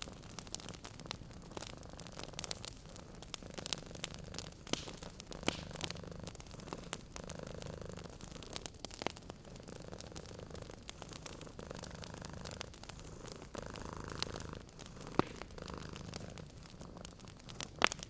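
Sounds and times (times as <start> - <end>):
cat purring: 0.0 - 18.0
wood fire crackling and popping: 0.0 - 18.0.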